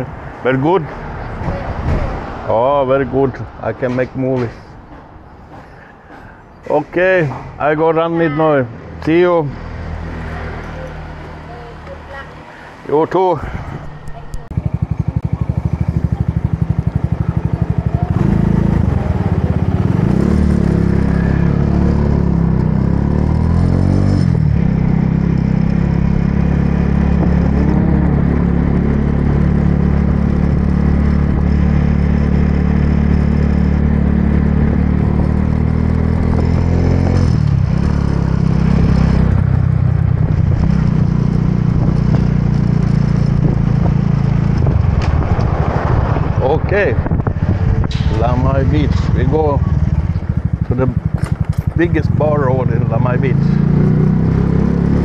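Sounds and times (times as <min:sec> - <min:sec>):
motorbike engine revving: 0:13.8 - 0:55.0.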